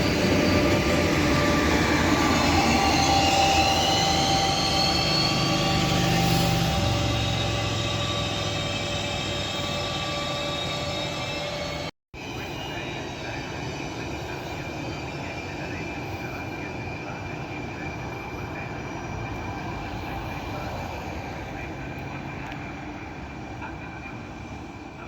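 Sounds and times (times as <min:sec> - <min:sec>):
train wheels rumbling on rails: 0:00.0 - 0:13.4
locomotive high whine: 0:00.0 - 0:25.0.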